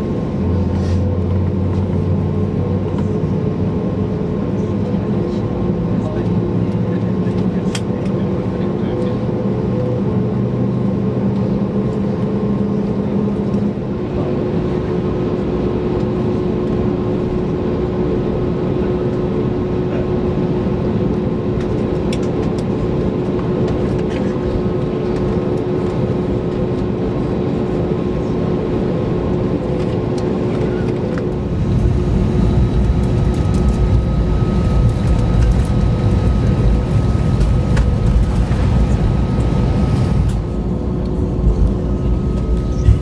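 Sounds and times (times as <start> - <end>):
aircraft cabin engine rumble: 0.0 - 10.2, 11.4 - 43.0
low hum: 31.2 - 43.0.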